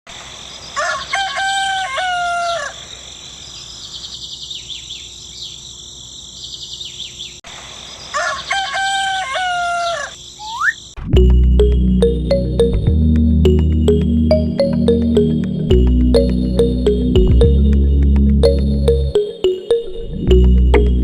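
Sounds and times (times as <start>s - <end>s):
rooster crowing: 0.8s - 2.9s, 8.1s - 10.2s
small birds chirping: 2.6s - 8.1s, 9.9s - 11.0s.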